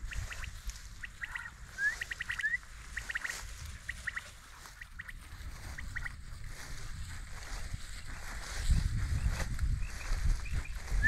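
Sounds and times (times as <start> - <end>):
birds chirping: 0.0 - 6.2.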